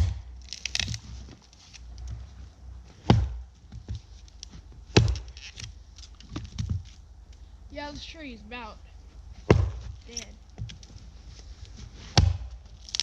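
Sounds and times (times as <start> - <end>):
axe chopping tree trunk: 0.0 - 1.1, 2.9 - 6.9, 9.4 - 10.8, 12.0 - 13.0.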